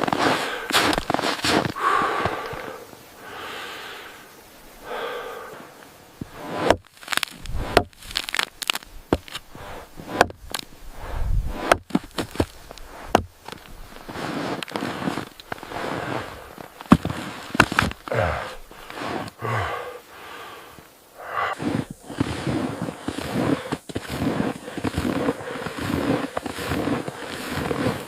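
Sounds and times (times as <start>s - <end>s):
soft rustling: 0.0s - 2.8s, 6.2s - 19.5s, 20.7s - 28.0s
sharp cracks and snaps: 5.8s - 9.5s, 10.2s - 10.8s.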